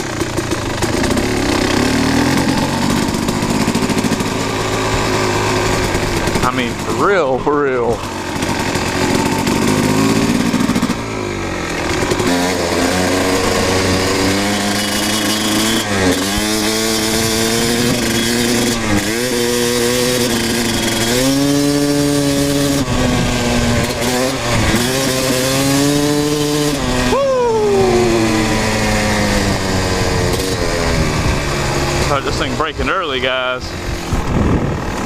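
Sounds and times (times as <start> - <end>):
dirt bike engine revving: 0.0 - 35.0
wind noise: 28.1 - 31.9, 33.7 - 35.0.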